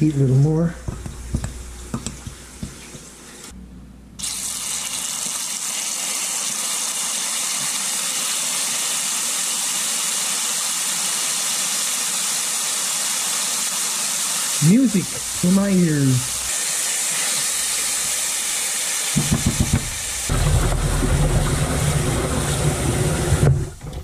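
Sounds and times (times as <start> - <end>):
meat sizzling in oil: 4.2 - 23.0.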